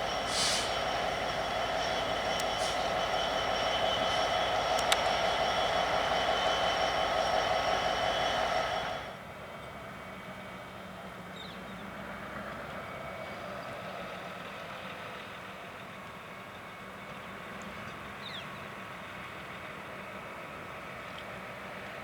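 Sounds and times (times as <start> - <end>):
engine idling hum: 0.0 - 9.8.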